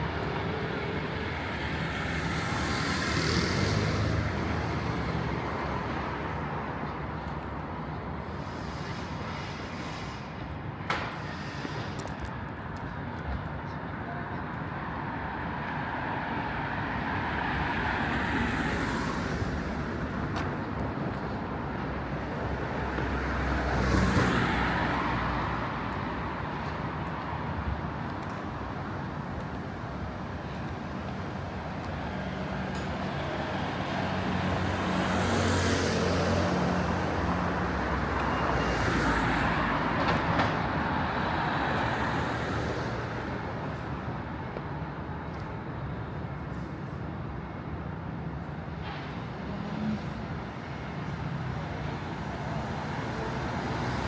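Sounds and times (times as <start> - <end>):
city traffic noise: 0.0 - 54.0
vehicles passing: 0.0 - 54.0.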